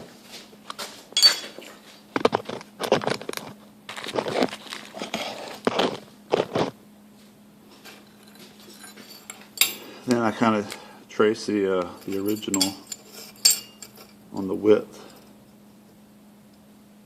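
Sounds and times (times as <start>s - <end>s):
faint steady hum: 0.0s - 17.0s
small objects knocking and clattering: 1.2s - 6.7s.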